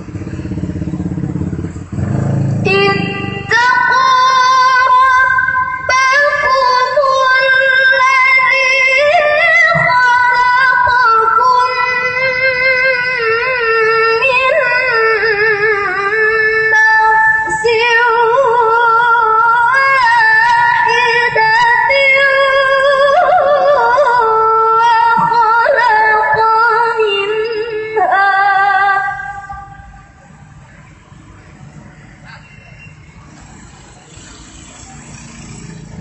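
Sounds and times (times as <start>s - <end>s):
melodic recitation by high voice: 2.6s - 30.0s.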